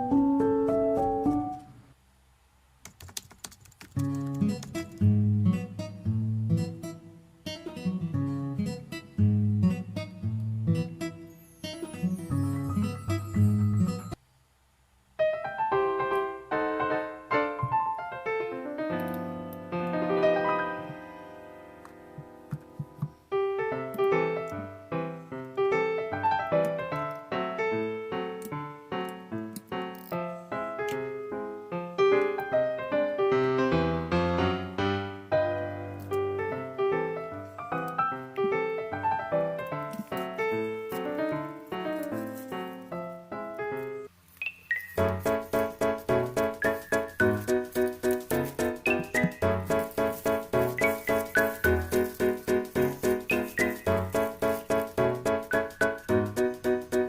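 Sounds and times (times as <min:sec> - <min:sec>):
acoustic guitar music: 0:00.0 - 0:01.7, 0:04.0 - 0:14.2, 0:44.7 - 0:57.0
gentle piano music: 0:00.0 - 0:01.8, 0:07.6 - 0:14.2, 0:15.2 - 0:57.0
plucked guitar music: 0:04.3 - 0:14.0, 0:45.0 - 0:57.0.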